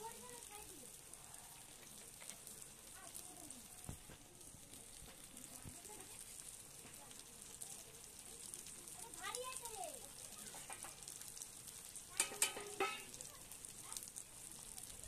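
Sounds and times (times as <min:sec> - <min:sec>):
paste sizzling in oil: 0:00.0 - 0:15.0
metal spatula stirring: 0:12.1 - 0:13.2.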